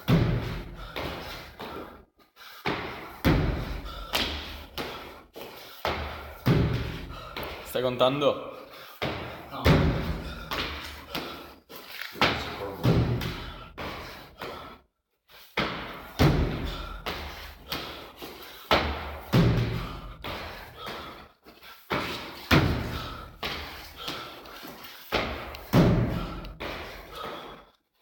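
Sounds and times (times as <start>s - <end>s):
heavy thuds on gym floor: 0.0s - 0.9s, 5.9s - 7.3s, 12.2s - 13.5s, 15.6s - 16.9s, 18.7s - 20.3s, 25.2s - 26.3s.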